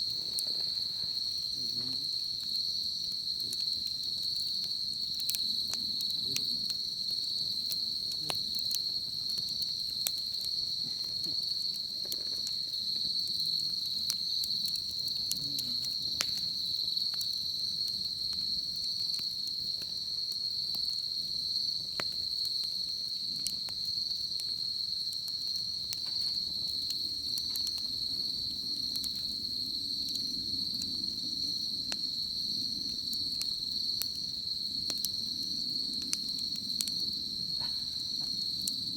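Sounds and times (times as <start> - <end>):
sharp fire pops: 0.0 - 20.9, 21.8 - 29.4, 32.8 - 38.9
insects chirring: 0.0 - 38.9
wood fire crackling: 0.0 - 38.9.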